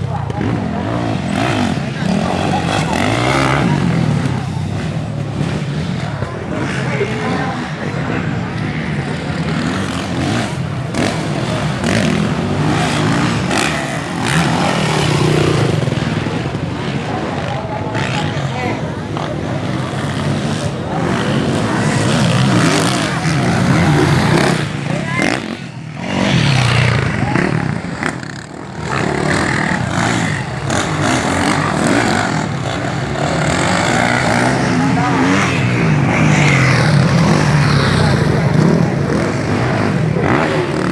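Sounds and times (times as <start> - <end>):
dirt bike engines revving: 0.0 - 40.9.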